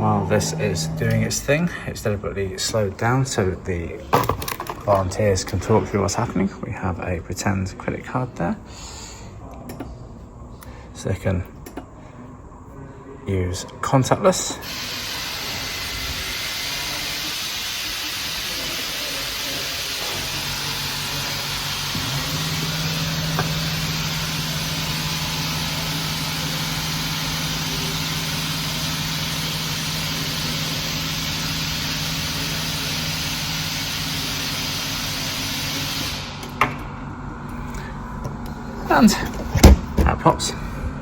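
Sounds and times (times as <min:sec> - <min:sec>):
low machine hum: 0:00.0 - 0:14.6, 0:18.5 - 0:35.5, 0:36.1 - 0:41.0
steady hiss: 0:14.7 - 0:36.4.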